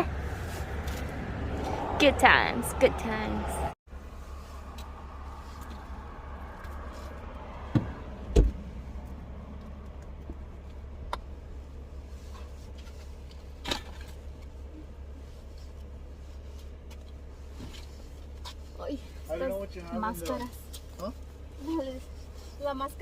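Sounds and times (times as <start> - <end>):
knocks and thumps inside car: 7.6 - 8.7.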